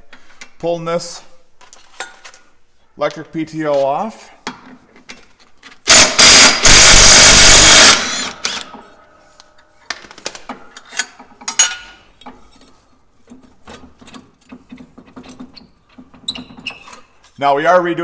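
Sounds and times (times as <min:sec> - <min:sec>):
impact wrench bursts: 0:05.8 - 0:08.8.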